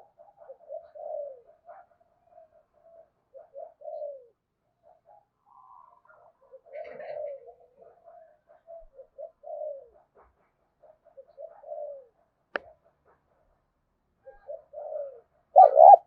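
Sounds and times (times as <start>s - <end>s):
doves cooing: 0.0s - 13.4s, 14.2s - 16.0s
higher bright bird call: 15.6s - 16.0s.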